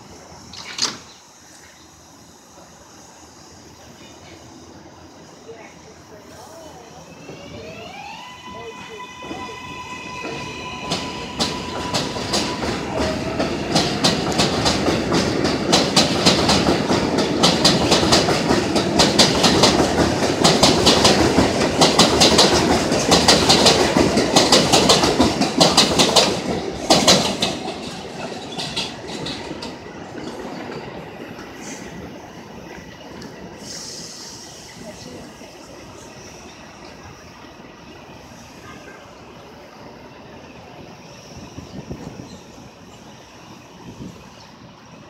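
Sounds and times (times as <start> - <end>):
train wheels clacking over rail joints: 0.5 - 1.7, 10.1 - 31.9.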